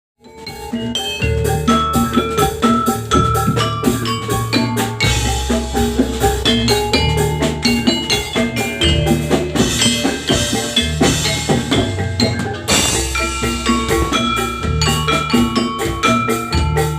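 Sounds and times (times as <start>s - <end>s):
drums: 0.2s - 16.9s
metallophones and gongs ringing: 0.2s - 16.9s
low bass: 0.7s - 16.9s.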